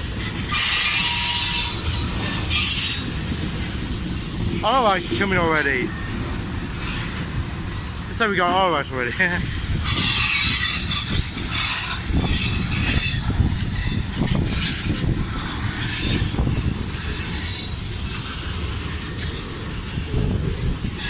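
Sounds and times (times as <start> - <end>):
freight train rumbling past: 0.0 - 21.0
knocks and clatter of train: 0.0 - 21.0
high hissing wheel noise: 9.8 - 21.0.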